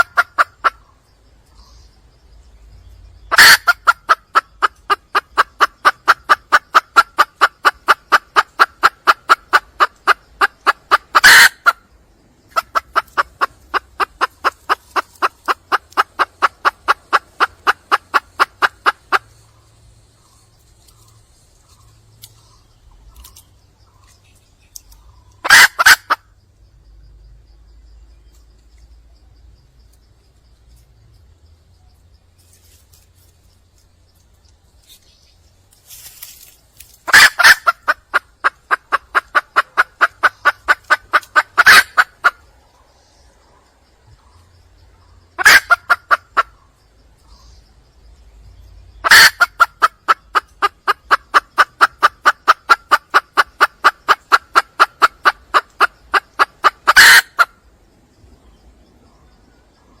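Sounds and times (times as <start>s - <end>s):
hen clucking: 0.0s - 1.8s, 3.2s - 26.4s, 37.0s - 42.9s, 44.2s - 47.6s, 49.0s - 57.6s
loud hen call: 3.3s - 11.8s, 25.4s - 26.2s, 37.1s - 42.4s, 45.4s - 46.5s, 49.0s - 57.6s.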